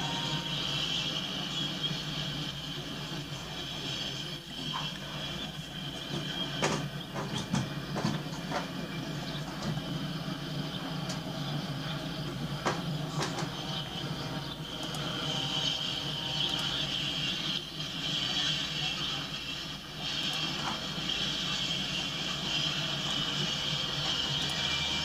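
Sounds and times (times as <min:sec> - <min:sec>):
freight train wheels rumbling on rail: 0:00.0 - 0:25.0
sharp clicks of train wheels: 0:01.4 - 0:13.8, 0:18.3 - 0:24.9.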